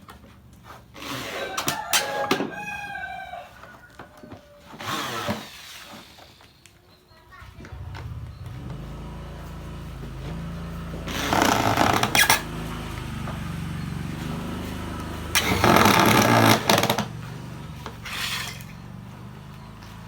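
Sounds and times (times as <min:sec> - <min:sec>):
power drill drilling: 0:04.7 - 0:06.5, 0:10.9 - 0:12.6, 0:15.2 - 0:17.2.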